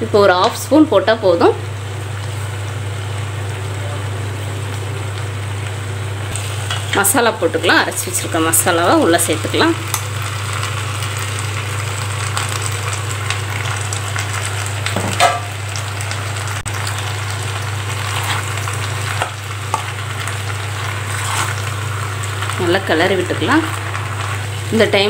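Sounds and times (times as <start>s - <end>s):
vegetables sizzling in oil: 0.0s - 25.0s
metal spatula scraping: 21.0s - 21.6s.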